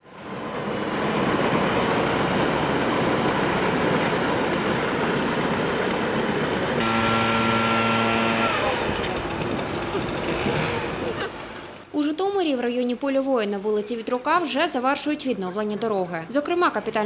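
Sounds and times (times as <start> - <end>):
heavy machinery engine rumble: 0.2 - 11.9.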